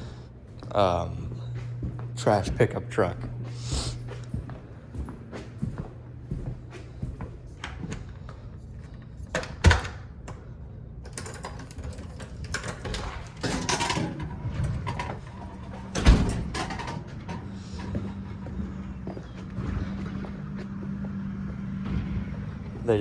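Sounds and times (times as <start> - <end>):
air conditioner hum: 0.0 - 23.0
garbage truck emptying trash can: 11.9 - 23.0.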